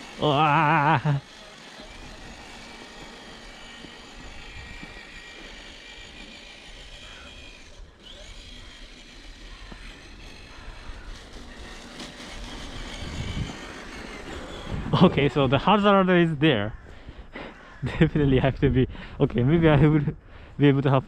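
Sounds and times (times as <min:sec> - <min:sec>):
small electric motor whirring: 0:00.0 - 0:17.1.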